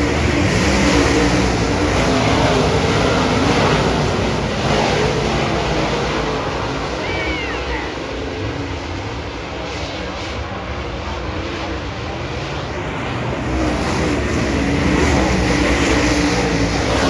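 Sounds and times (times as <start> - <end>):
race car engines running hard: 0.0 - 17.0.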